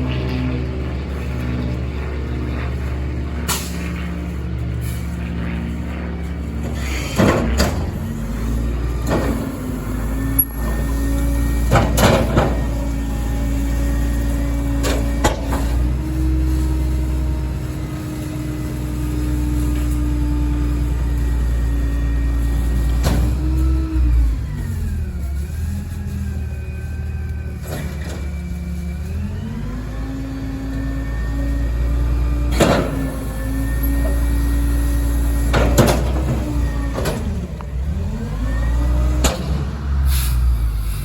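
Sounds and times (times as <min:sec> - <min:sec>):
garbage truck diesel engine droning: 0:00.0 - 0:41.0
trash banging and crashing: 0:06.7 - 0:13.0, 0:35.4 - 0:37.6.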